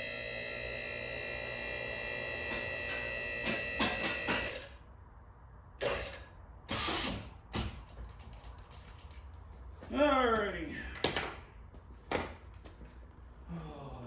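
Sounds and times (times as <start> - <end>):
electric hydraulic pump whining: 0.0 - 4.8.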